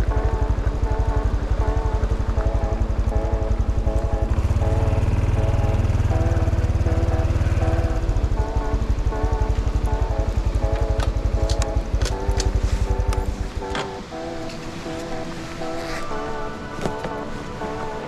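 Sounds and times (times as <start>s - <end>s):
background music: 0.0s - 18.0s
motorcycle engine putter: 9.5s - 14.0s.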